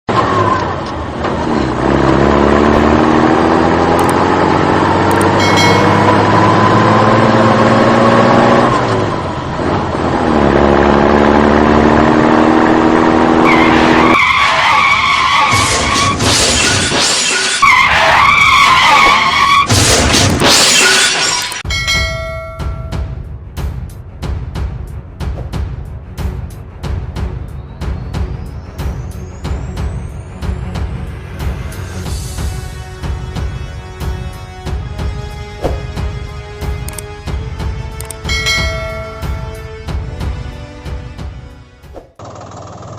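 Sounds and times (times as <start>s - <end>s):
engine accelerating: 0.1s - 16.5s, 24.3s - 42.9s
tyres screeching: 13.4s - 21.6s
crash-like clatter: 15.5s - 17.6s.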